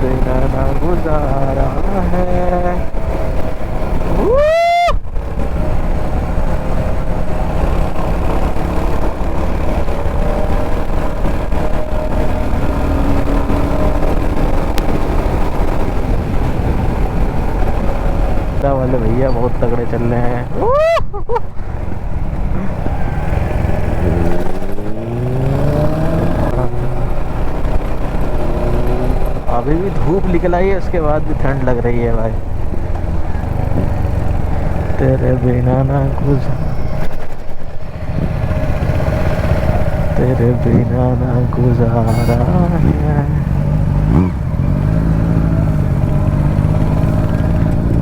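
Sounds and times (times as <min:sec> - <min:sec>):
motorcycle engine at speed: 0:00.0 - 0:48.0
wind and road noise: 0:00.0 - 0:48.0
loud high tone: 0:42.0 - 0:42.9.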